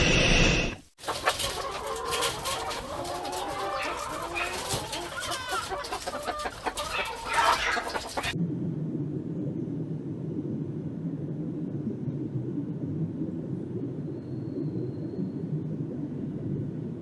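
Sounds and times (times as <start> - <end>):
chickens clucking: 1.0 - 8.4.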